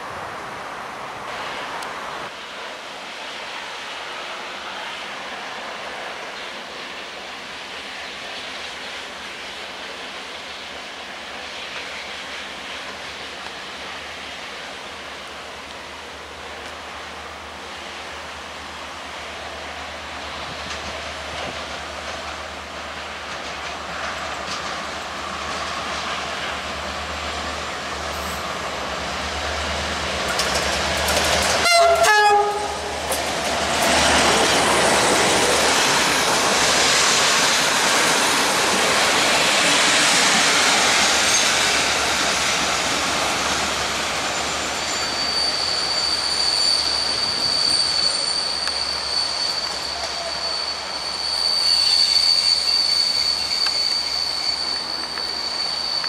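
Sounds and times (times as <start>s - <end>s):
diesel locomotive engine: 0.0s - 56.0s
wheels clattering over rail joints: 30.2s - 36.6s
two-note train horn: 31.6s - 33.0s
high wheel squeal: 39.6s - 56.0s.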